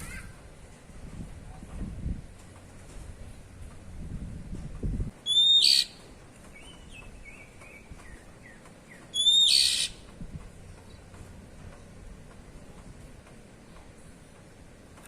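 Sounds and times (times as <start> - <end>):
bird giving harsh calls: 5.2 - 6.0, 9.1 - 10.0
soft bird twittering: 5.2 - 10.1.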